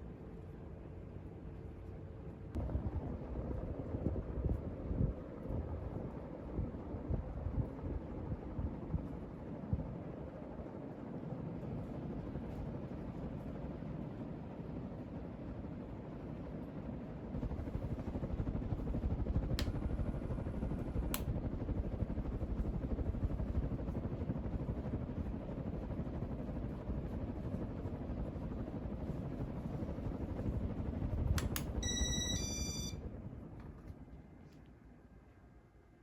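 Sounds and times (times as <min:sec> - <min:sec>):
ceiling fan running: 0:17.4 - 0:35.0
short beeps: 0:31.8 - 0:33.0.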